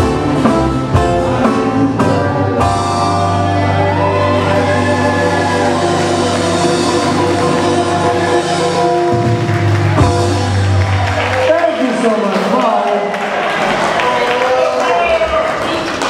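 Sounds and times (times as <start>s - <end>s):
live band strumming: 0.0s - 14.1s
held chord with gliding note: 2.4s - 10.9s.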